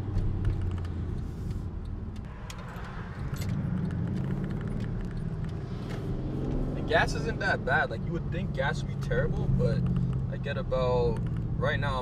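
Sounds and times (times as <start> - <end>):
car engine drone in cabin: 0.0 - 12.0.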